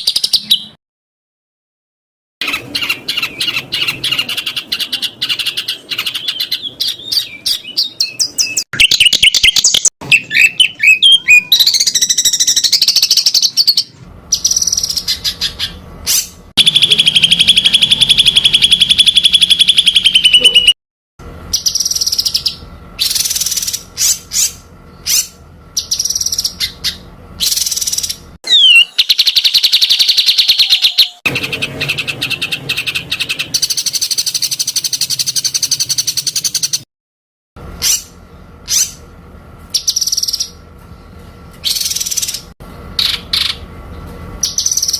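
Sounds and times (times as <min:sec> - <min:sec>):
songbird singing high notes: 0:06.0 - 0:13.6, 0:16.6 - 0:20.8, 0:21.6 - 0:31.2.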